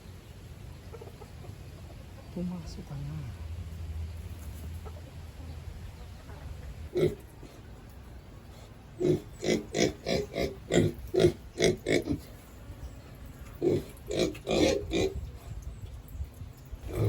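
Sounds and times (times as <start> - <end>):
pig grunting: 6.9 - 7.6, 9.0 - 12.4, 13.6 - 15.3.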